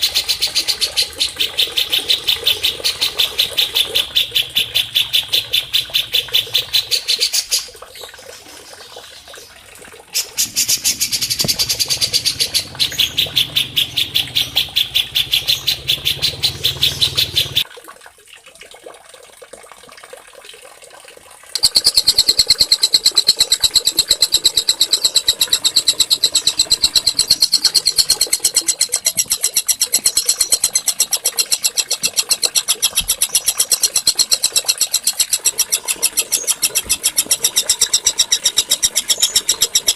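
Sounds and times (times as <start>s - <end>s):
songbird high trill: 21.6s - 39.9s.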